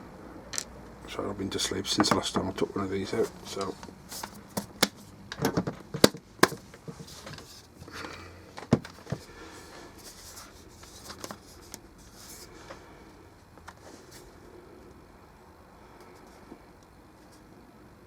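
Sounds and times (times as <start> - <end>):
handling noise: 1.8 - 9.4
plastic speaker casing clicking: 3.6 - 6.9.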